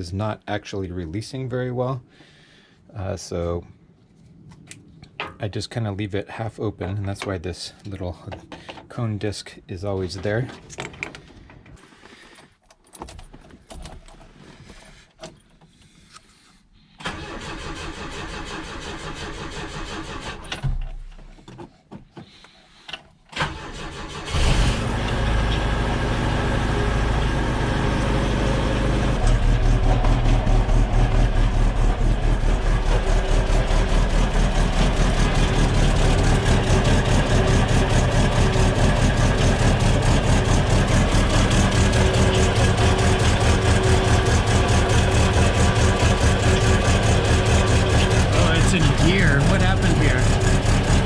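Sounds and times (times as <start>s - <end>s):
car engine cranking and running: 17.0s - 21.4s, 22.9s - 51.0s.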